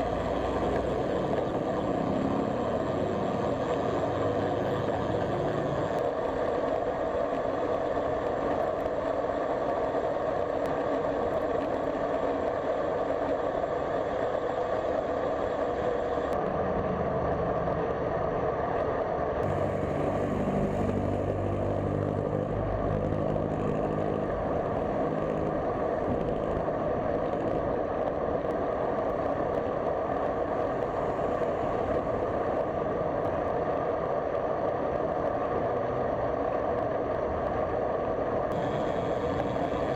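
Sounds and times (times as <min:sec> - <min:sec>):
road and wind noise: 0:00.0 - 0:39.9
large vehicle engine passing: 0:19.4 - 0:25.5.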